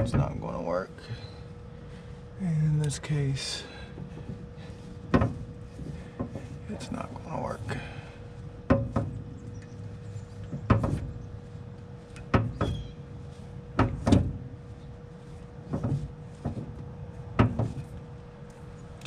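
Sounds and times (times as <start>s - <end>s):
metallic knocks and clunks: 0.0s - 0.4s, 3.9s - 6.7s, 8.6s - 11.3s, 12.0s - 12.9s, 13.7s - 14.6s, 15.6s - 18.0s
faint steady hum: 0.0s - 19.0s.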